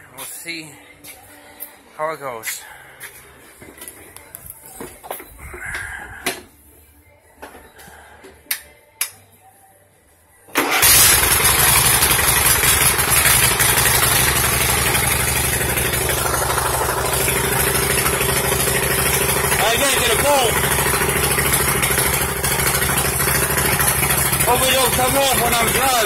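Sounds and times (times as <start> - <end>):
lawn tractor engine running: 10.6 - 26.0.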